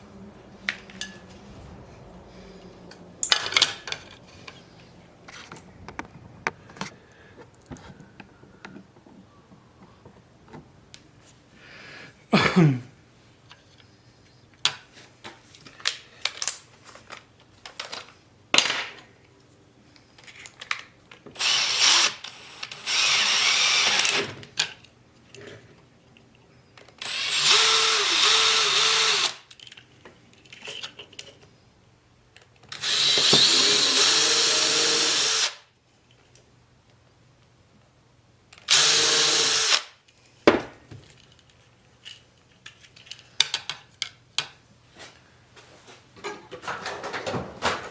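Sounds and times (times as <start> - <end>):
power drill running: 21.4 - 24.2, 27.0 - 29.4, 32.7 - 35.6, 38.7 - 39.9.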